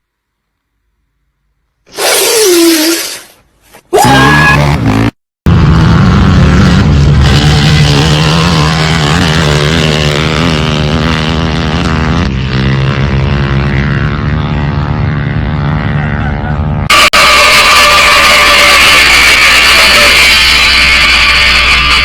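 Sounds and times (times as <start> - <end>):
dirt bike engine running: 4.5 - 22.0.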